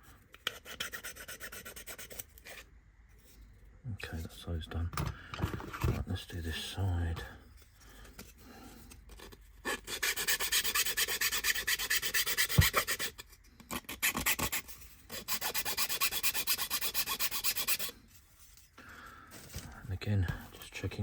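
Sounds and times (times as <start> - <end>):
rubbing strokes on thin wood: 9.6 - 13.2, 13.9 - 18.6.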